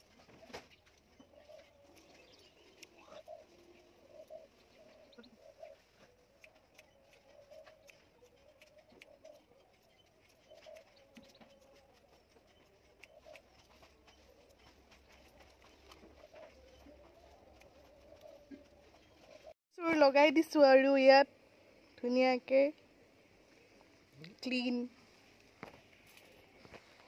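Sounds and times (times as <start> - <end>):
bird cooing: 0.0 - 19.5
scissors snipping hair: 6.2 - 14.0.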